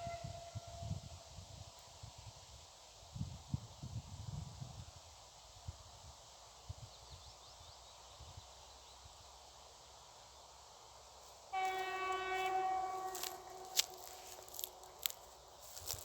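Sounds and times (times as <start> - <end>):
locomotive horn blast: 0.0 - 0.9, 11.5 - 15.2.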